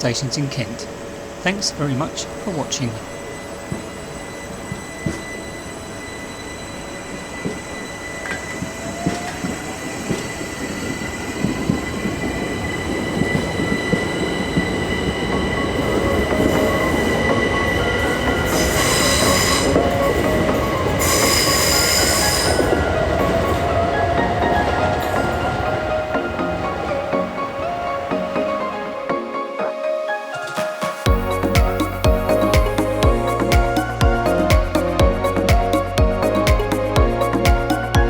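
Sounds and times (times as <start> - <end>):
electric train motor whine: 0.0 - 29.3
train wheels squealing: 0.1 - 29.1.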